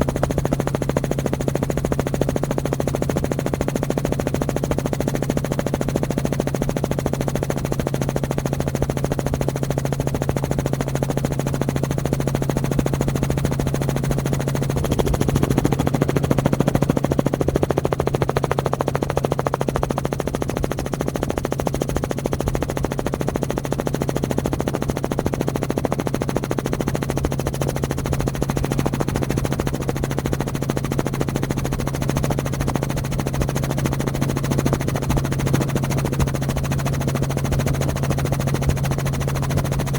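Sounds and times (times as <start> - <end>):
engine running with pulsing beat: 12.0 - 20.0.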